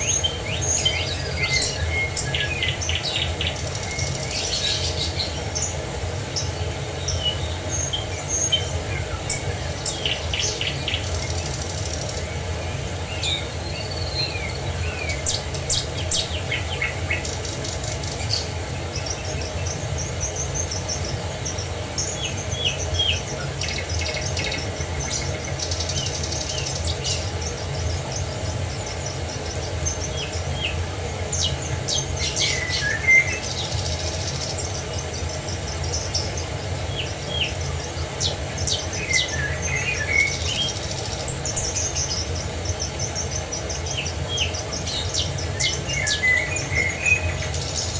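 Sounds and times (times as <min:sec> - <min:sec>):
birds chirping and trilling: 0:00.0 - 0:47.9.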